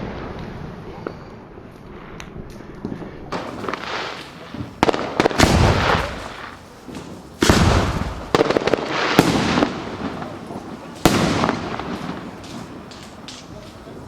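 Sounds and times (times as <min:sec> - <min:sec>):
fireworks crackles: 0:00.0 - 0:14.0
fireworks bangs with echo: 0:03.3 - 0:14.0.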